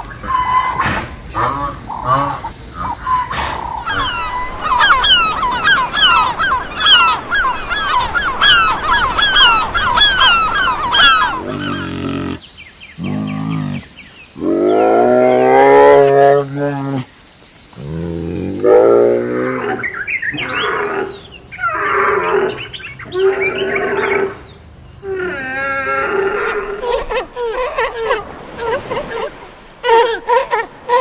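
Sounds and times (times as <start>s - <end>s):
deep animal calls: 0.2s - 12.4s, 13.0s - 17.1s.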